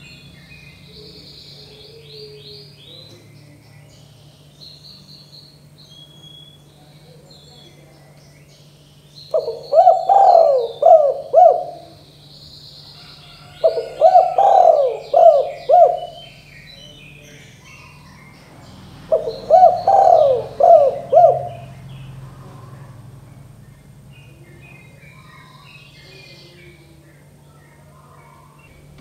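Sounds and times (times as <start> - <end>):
faint high bird chirps: 0.0 - 22.2, 23.8 - 29.0
dove cooing: 0.8 - 3.2, 9.3 - 12.2, 12.9 - 18.3, 19.0 - 23.5.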